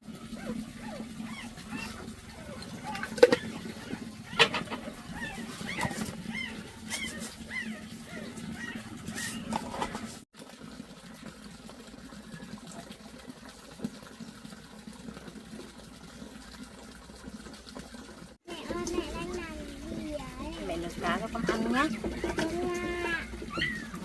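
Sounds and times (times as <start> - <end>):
faint running water: 0.0 - 24.0.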